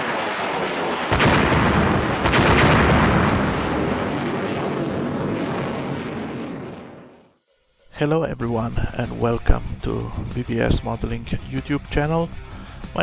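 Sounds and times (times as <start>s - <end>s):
loud booms: 0.0s - 7.3s
rumble: 0.0s - 7.9s.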